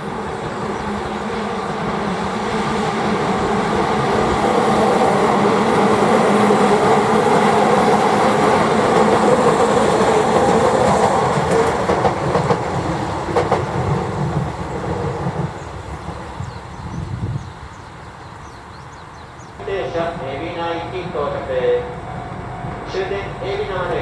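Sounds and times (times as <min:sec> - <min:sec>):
electric train running past: 0:00.0 - 0:24.0
train wheels clacking over rail joints: 0:06.8 - 0:16.2.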